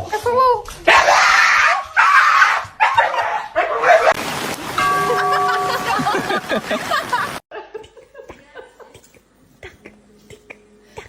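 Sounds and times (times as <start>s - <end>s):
dog barking loudly: 0.9s - 4.2s.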